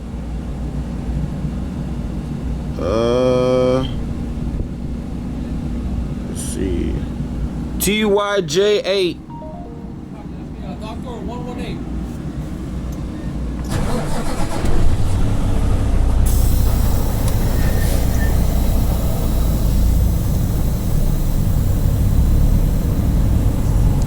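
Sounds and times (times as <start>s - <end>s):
diesel truck engine rumbling: 10.2s - 24.0s
hiss: 16.2s - 24.0s.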